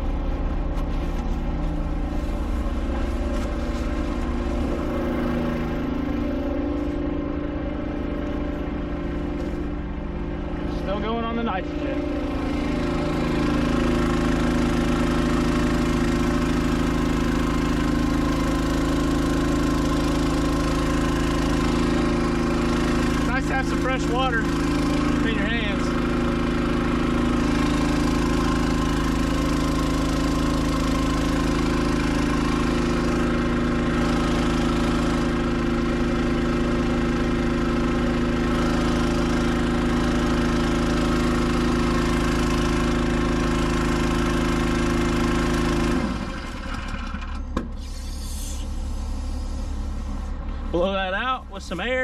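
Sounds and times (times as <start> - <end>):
engine running steadily: 0.0 - 52.0
quieter engine running: 0.0 - 52.0.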